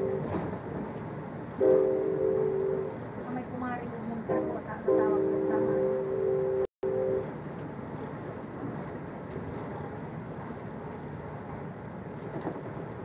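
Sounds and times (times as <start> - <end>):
train rolling rumble: 0.0 - 13.0
two-note train horn: 1.6 - 3.0, 4.3 - 7.3.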